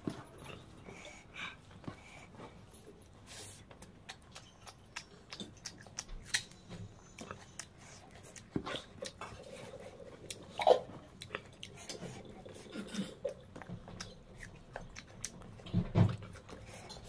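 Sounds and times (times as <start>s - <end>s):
person chewing food: 0.0s - 17.0s
wet mouth clicks and lip smacks: 3.8s - 9.4s.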